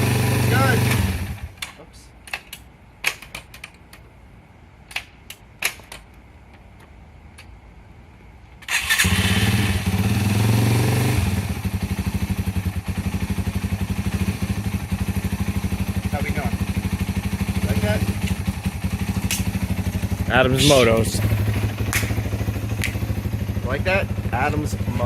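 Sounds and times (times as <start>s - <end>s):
motorcycle engine starting and idling: 0.0s - 1.7s, 8.6s - 25.0s
sharp clicks: 19.2s - 19.6s.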